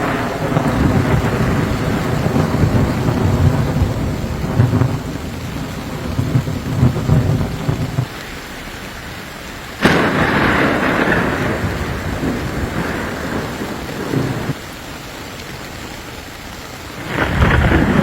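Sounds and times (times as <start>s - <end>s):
rolling thunder: 0.0s - 8.1s, 9.8s - 14.6s, 17.0s - 18.0s
sharp thunderclap: 0.0s - 8.1s, 9.8s - 14.6s, 17.0s - 18.0s
rain: 0.0s - 18.0s.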